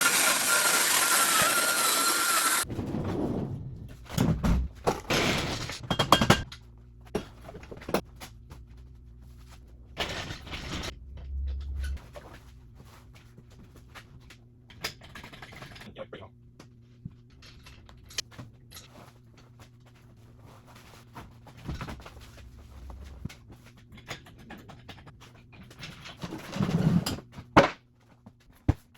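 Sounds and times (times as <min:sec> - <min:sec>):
loud steady noise: 0:00.0 - 0:02.6.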